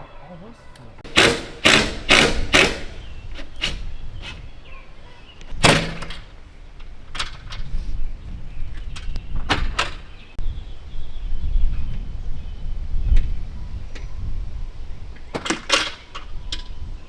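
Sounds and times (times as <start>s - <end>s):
metal doors and latches banging: 0.0s - 7.7s, 8.8s - 10.2s, 15.3s - 16.3s.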